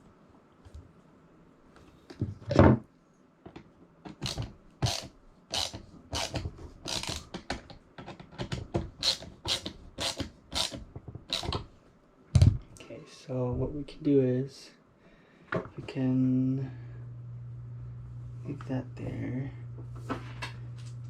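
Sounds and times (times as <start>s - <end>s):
ratchet rasping strokes: 4.2s - 7.3s, 9.0s - 11.5s.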